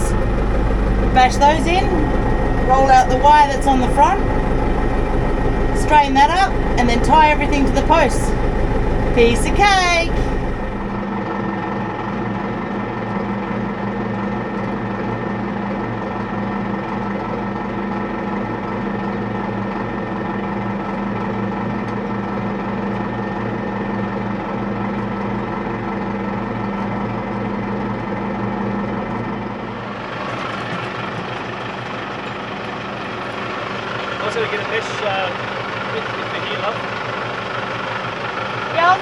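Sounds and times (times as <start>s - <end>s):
tractor engine running: 0.0s - 11.1s, 28.9s - 39.0s.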